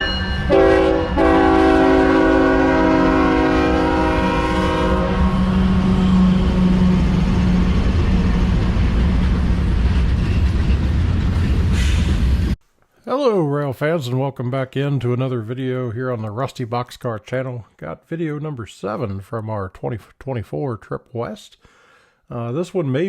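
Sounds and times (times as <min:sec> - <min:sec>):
train whistle chord: 0:00.0 - 0:07.7
low rumble of a train: 0:00.0 - 0:12.6.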